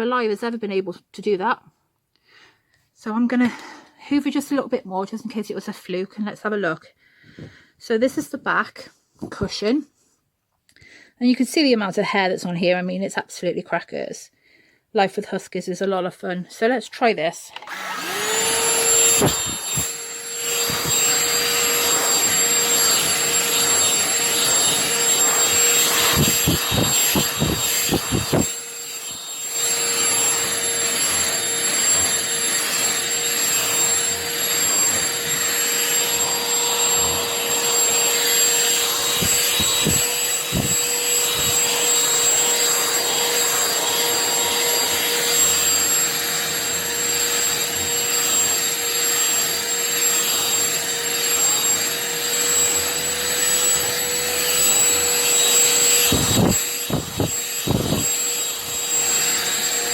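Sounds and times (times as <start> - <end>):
handheld vacuum cleaner whine: 17.5 - 59.9.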